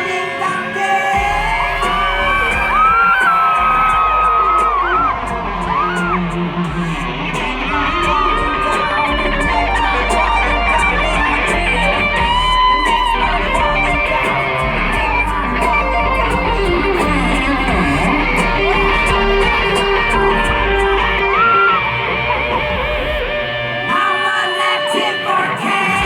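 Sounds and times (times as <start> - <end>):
electric guitar: 0.0 - 26.0
live rock band instrumental: 0.0 - 26.0.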